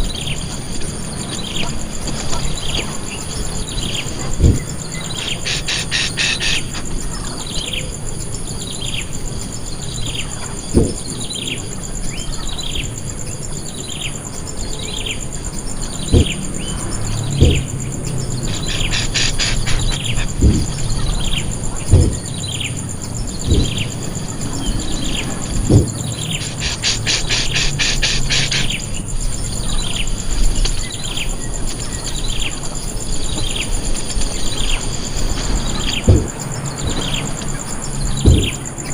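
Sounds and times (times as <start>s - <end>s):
high insect drone: 0.0s - 38.9s
dull low knocks: 4.3s - 6.1s, 10.7s - 11.1s, 16.0s - 24.6s, 25.4s - 26.6s, 36.0s - 37.1s, 38.1s - 38.8s
bird call sliding downward: 5.2s - 6.8s, 18.4s - 21.4s, 26.2s - 28.8s.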